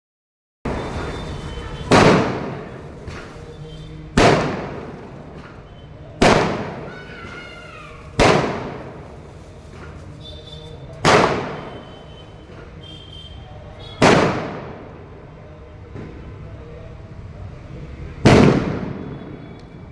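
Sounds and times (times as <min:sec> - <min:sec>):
firecrackers banging: 0:00.7 - 0:15.2, 0:18.1 - 0:19.9.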